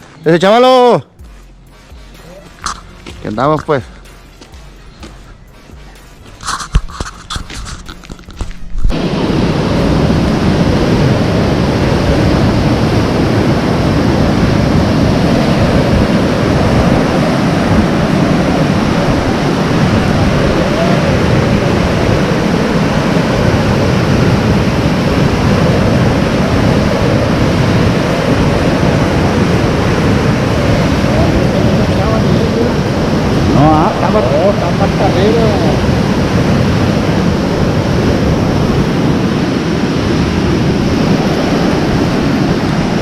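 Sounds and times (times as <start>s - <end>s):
wind on microphone: 4.9s - 43.0s
heavy rain downpour: 15.6s - 39.6s.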